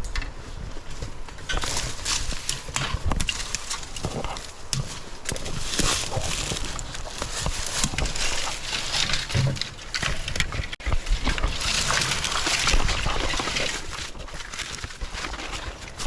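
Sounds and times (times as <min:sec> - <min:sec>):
brush rustling against body: 0:00.4 - 0:16.0
footsteps crunching dry leaves: 0:00.6 - 0:16.0.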